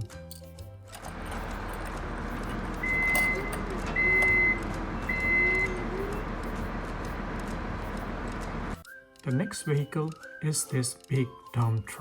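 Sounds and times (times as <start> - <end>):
engine rumble: 1.0 - 8.8
vehicle reversing alarm beeps: 1.1 - 8.8.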